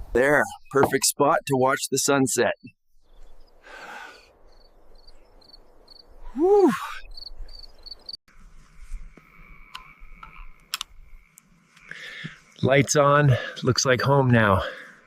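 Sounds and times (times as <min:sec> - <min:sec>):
crickets chirping: 0:03.0 - 0:15.0
high insect drone: 0:03.4 - 0:15.0
person exhaling whew: 0:06.2 - 0:07.1
sharp clicks: 0:09.7 - 0:11.9.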